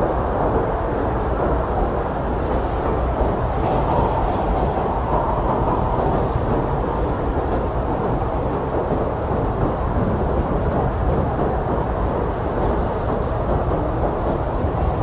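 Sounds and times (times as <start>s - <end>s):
strong wind blowing: 0.0s - 15.0s.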